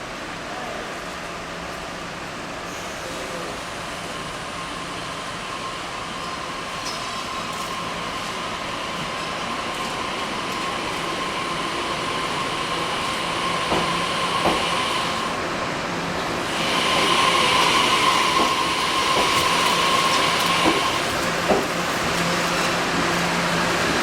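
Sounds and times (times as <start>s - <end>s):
train hum and hiss: 0.0s - 24.0s
train wheels clacking over rail joints: 13.3s - 15.2s, 16.3s - 23.6s.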